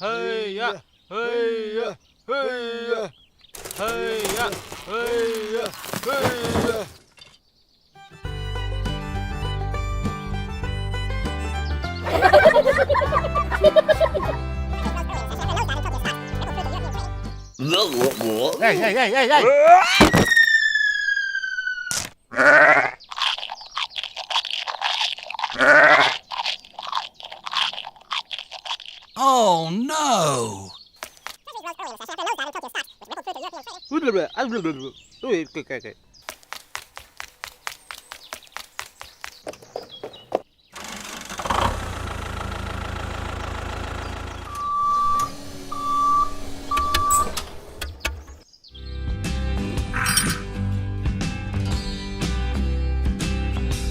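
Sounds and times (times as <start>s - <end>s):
crunching chewing noises: 3.5s - 7.1s, 22.3s - 29.3s, 30.6s - 33.8s, 36.2s - 41.8s
falling whistle tone: 20.0s - 22.0s
wavering bleat-like calls: 22.3s - 23.0s, 25.5s - 26.2s
engine running steadily: 40.8s - 47.9s
short beeps: 44.5s - 47.3s.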